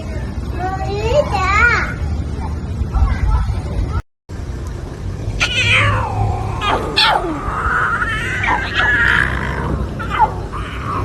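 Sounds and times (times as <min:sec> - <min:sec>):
animal crying out: 0:05.3 - 0:11.0.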